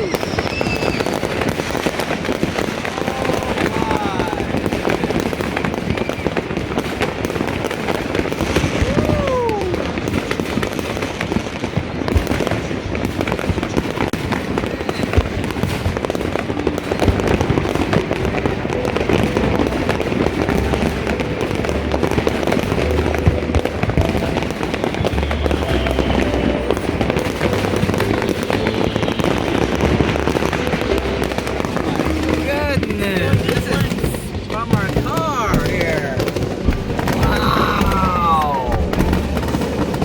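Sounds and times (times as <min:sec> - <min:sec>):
fireworks crackling and popping: 0:00.0 - 0:40.0.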